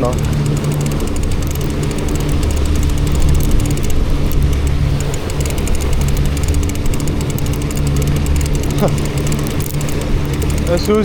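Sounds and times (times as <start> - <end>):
boat motor droning: 0.0 - 11.0
wind: 0.0 - 11.0.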